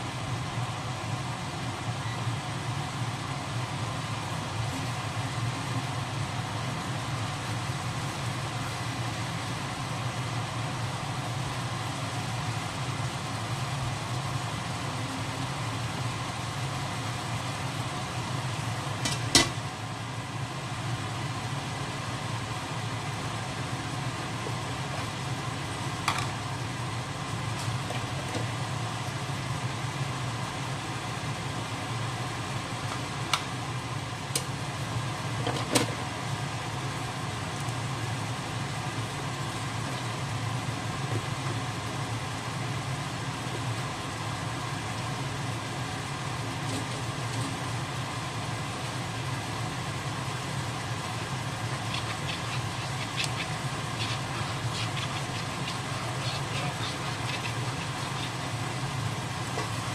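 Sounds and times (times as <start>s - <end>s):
low mechanical hum: 0.0s - 59.9s
squid hissing in a wok: 51.5s - 59.9s.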